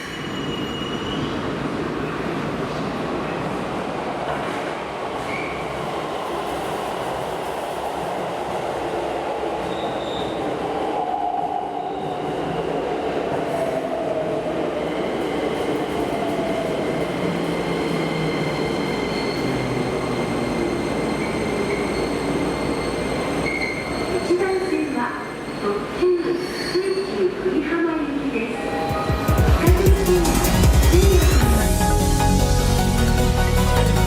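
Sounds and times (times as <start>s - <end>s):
subway train rumble: 0.0s - 34.0s
high wheel squeals: 18.8s - 27.2s.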